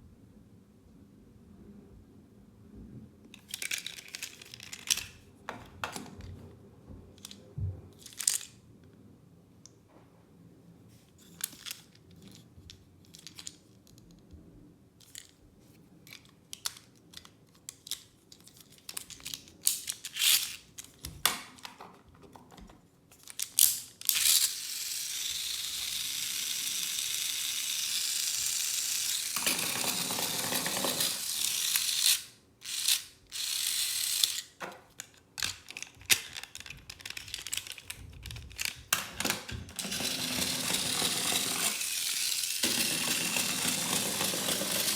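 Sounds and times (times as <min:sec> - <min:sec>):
plastic toy parts clicking: 0:03.3 - 0:06.2, 0:08.0 - 0:08.6, 0:11.3 - 0:14.2, 0:15.0 - 0:15.4, 0:16.0 - 0:21.8, 0:22.5 - 0:44.9
toy train motor whirring: 0:03.4 - 0:05.2, 0:19.2 - 0:20.7, 0:23.2 - 0:34.6, 0:35.4 - 0:38.8, 0:39.7 - 0:44.9.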